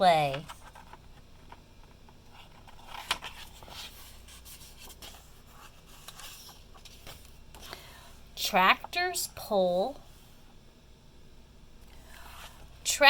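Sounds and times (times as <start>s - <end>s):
paper pages rustling and turning: 0.2s - 7.7s.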